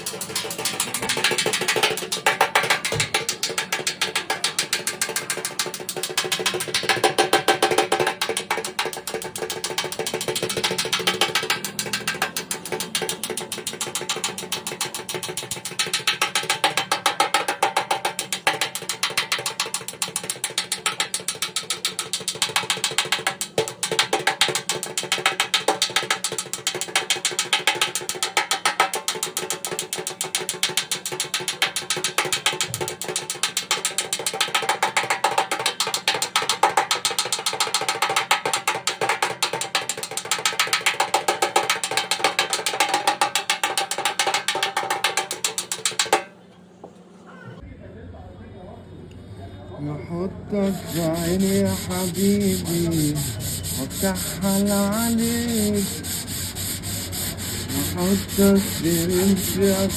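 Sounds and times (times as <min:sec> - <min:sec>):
fast mechanical clicks: 0:00.0 - 0:46.2.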